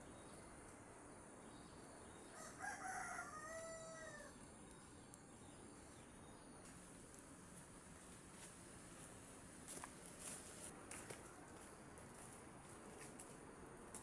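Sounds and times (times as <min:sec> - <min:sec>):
rooster crowing: 0:02.3 - 0:04.4.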